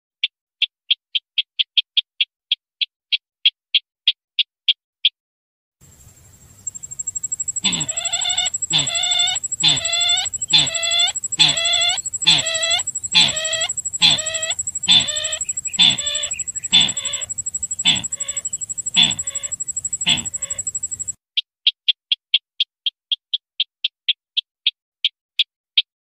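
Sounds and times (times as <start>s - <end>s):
bird lure clucking calls: 6.6s - 21.2s
high-pitched whine: 6.6s - 21.2s.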